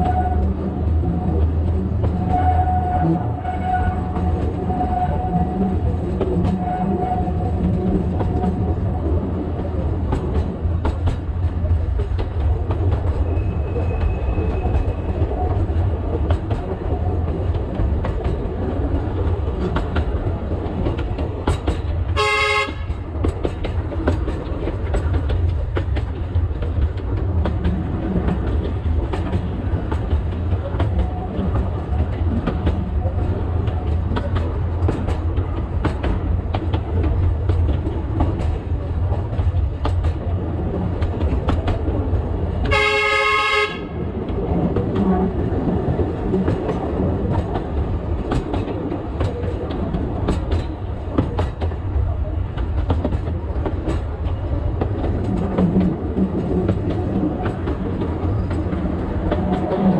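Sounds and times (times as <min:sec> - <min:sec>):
train horn: 0:00.0 - 0:00.4, 0:02.3 - 0:04.2, 0:22.2 - 0:23.0, 0:42.6 - 0:44.0
train rumbling: 0:00.0 - 0:59.9.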